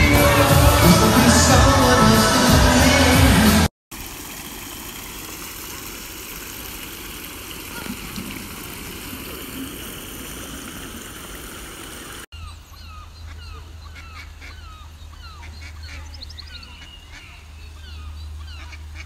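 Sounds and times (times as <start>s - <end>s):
outdoor hiss: 3.9s - 12.3s
birds chirping: 7.5s - 19.0s.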